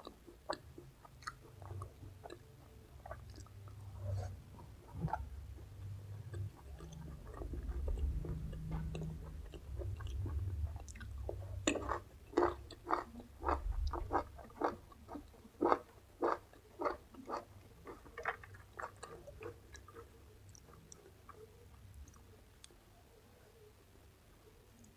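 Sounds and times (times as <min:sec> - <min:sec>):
crunchy chewing of raw vegetables: 0:00.0 - 0:22.8
low rumble: 0:03.9 - 0:12.4, 0:13.3 - 0:14.5.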